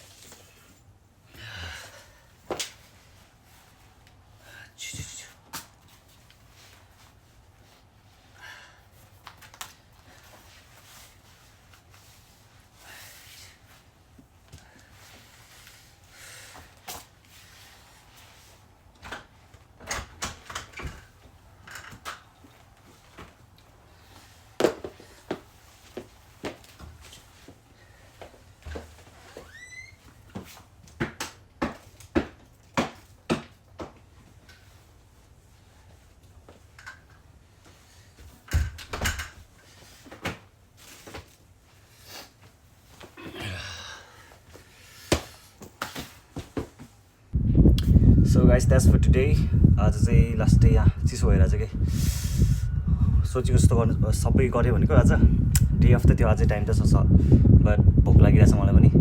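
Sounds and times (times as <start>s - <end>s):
knocks and scuffs: 24.1s - 27.6s, 44.5s - 47.0s.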